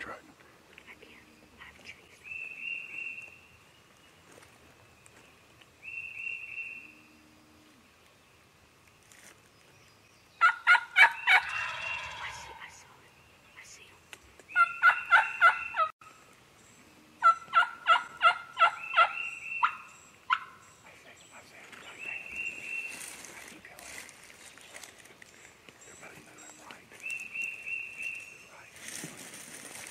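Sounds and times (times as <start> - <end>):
wild turkeys calling: 10.4 - 12.9, 14.5 - 16.2, 17.2 - 28.7.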